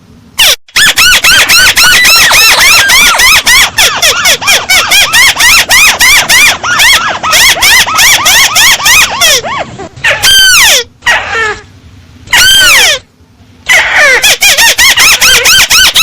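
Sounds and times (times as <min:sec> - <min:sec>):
crake calling squealing notes: 0:00.4 - 0:09.5, 0:13.7 - 0:16.0.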